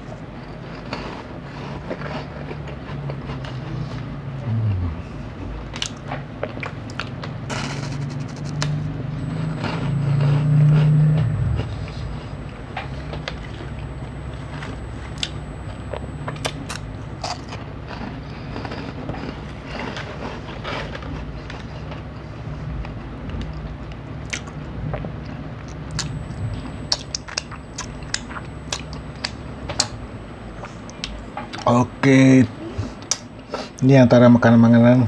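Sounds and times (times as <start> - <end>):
low steady hum: 0.0 - 35.0
crunchy snack chewing: 14.5 - 21.9, 26.9 - 30.0.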